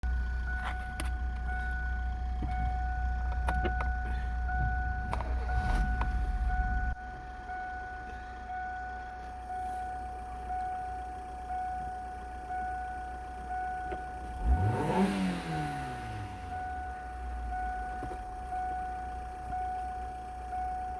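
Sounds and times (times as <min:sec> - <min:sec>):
car engine rumbling: 0:00.0 - 0:20.9
engine revving: 0:02.4 - 0:07.3, 0:14.2 - 0:18.7.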